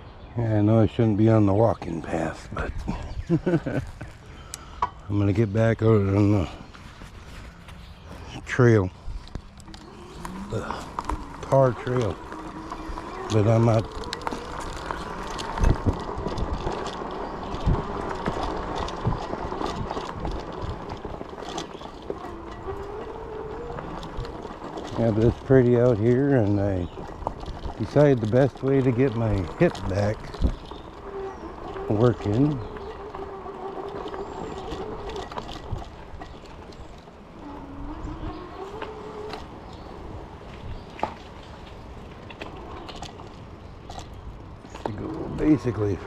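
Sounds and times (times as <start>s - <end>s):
hub motor whine: 3.2s - 46.0s
tyre and chain noise: 8.5s - 46.0s.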